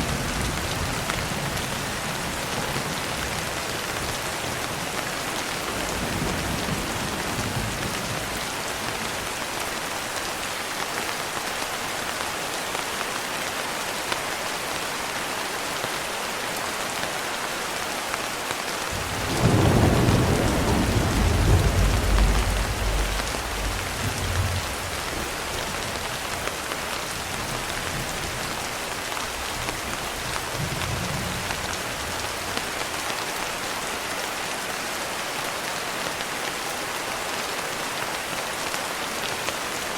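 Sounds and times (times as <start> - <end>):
rain pattering on window: 18.1 - 33.2
thunder rumbling: 18.9 - 26.6.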